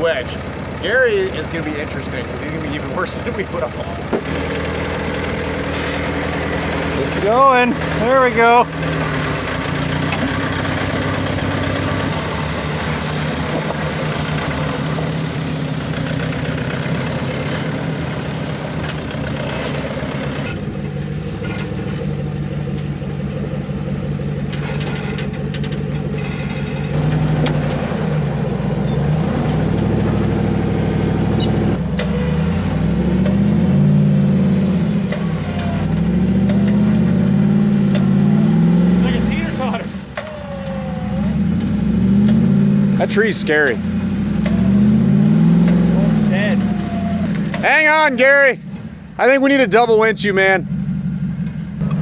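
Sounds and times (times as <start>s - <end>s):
off-road engine revving: 0.0s - 52.0s.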